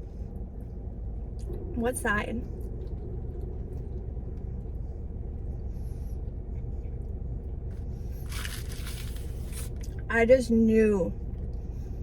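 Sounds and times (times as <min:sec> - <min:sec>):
car cabin rumble: 0:06.2 - 0:12.0
short rustle: 0:08.1 - 0:09.9.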